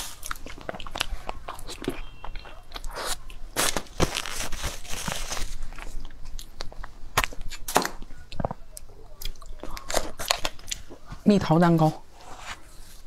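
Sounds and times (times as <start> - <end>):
person chewing food: 0.0 - 4.2, 5.0 - 11.2
crunching and crackling clicks: 0.2 - 11.2.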